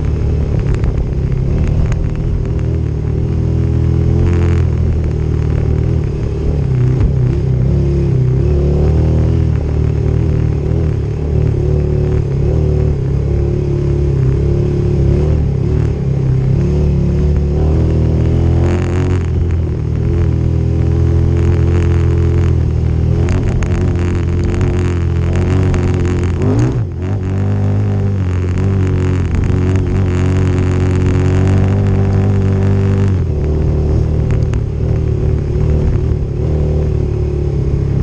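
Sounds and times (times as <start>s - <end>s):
crackling noise: 0.0s - 38.0s
motorcycle engine running: 0.0s - 38.0s.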